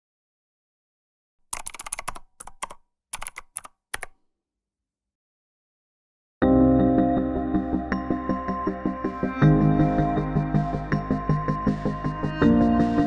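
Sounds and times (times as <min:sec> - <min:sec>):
computer keyboard typing: 0:01.5 - 0:04.2.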